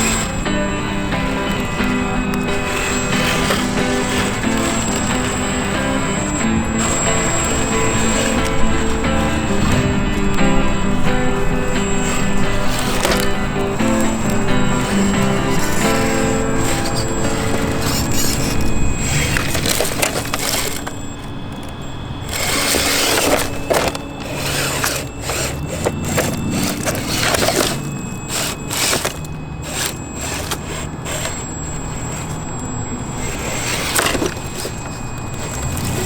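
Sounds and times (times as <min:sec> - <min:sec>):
tires crunching over dirt and rocks: 0:00.0 - 0:36.0.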